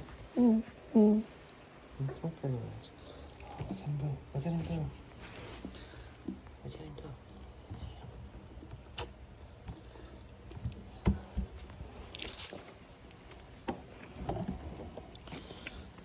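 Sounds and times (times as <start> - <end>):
puppies shuffling on bedding: 4.5 - 6.5.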